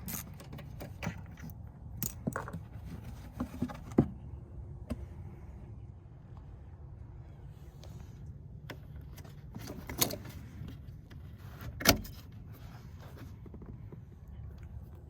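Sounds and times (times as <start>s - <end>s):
steady low rumble: 4.1s - 11.4s.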